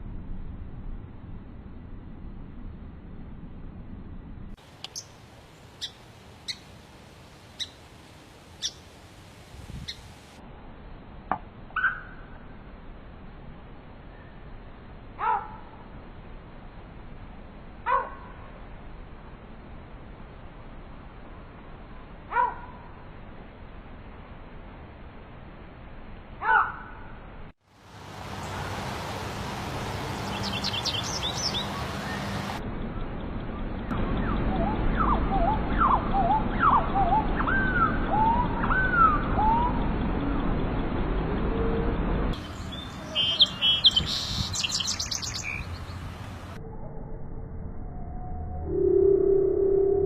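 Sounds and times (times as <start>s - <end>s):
faint steady hiss: 4.6s - 11.6s
songbird chirping: 4.8s - 6.8s, 7.5s - 7.9s, 8.5s - 8.9s, 28.0s - 33.1s, 33.8s - 40.4s, 42.3s - 46.6s.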